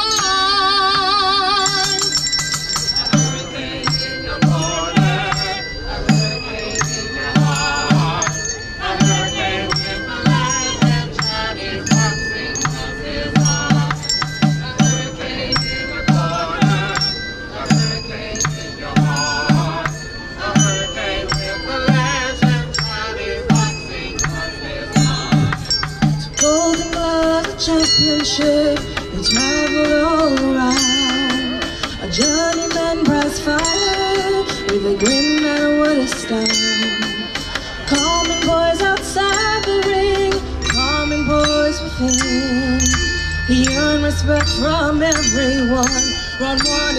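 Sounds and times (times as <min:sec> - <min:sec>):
wavering melody line: 0:00.0 - 0:46.9
steady low beat: 0:02.0 - 0:30.8.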